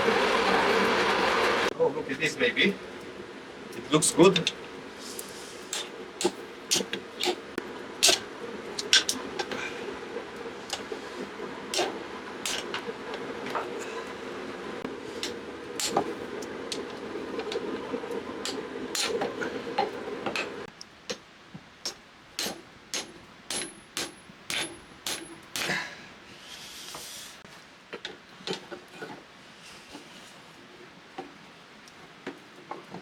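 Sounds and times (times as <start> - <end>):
steady hum: 0.0 - 20.7.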